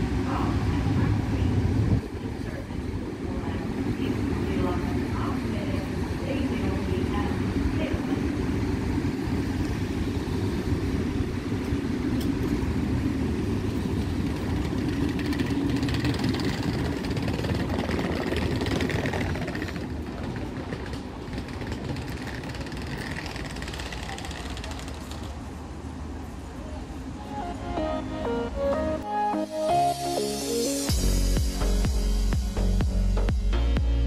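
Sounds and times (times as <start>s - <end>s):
train wheels rumbling on rails: 0.0s - 27.2s.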